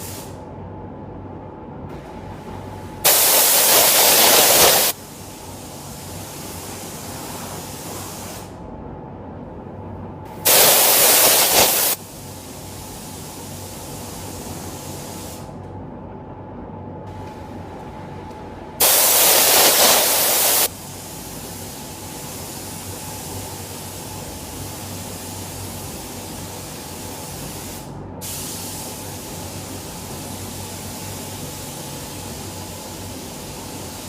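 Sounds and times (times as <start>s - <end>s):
air hissing: 0.0s - 0.4s, 3.0s - 8.6s, 10.4s - 15.6s, 18.8s - 34.0s
faint hum: 0.0s - 34.0s
paint spray gun burst: 3.1s - 5.0s, 10.5s - 12.0s, 18.8s - 20.7s.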